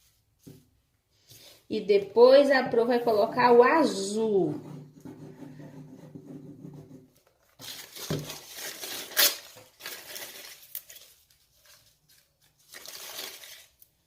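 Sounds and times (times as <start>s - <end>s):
crepe paper crinkling: 7.2s - 14.0s.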